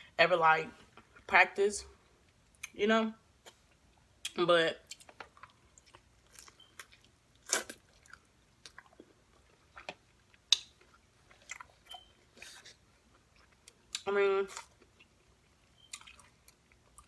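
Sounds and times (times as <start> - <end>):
chewing food: 3.4 - 17.0.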